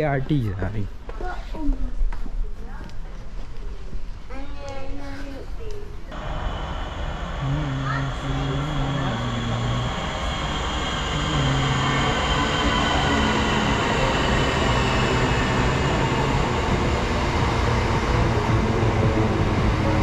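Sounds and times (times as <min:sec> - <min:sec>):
train rumble and wheel noise: 0:06.1 - 0:20.0
faint high falling whine: 0:06.2 - 0:20.0
motor hum: 0:06.2 - 0:20.0.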